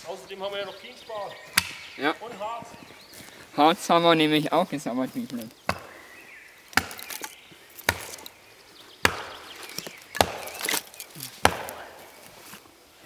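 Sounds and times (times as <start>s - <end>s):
axe chopping wood: 1.5s - 2.0s, 5.7s - 8.4s, 9.0s - 12.3s.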